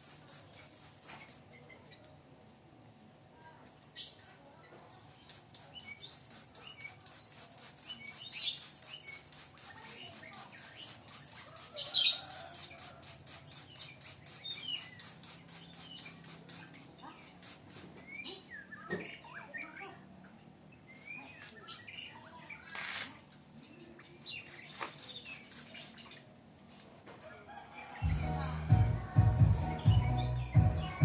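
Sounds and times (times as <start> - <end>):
bird chirping: 28.0 - 31.0.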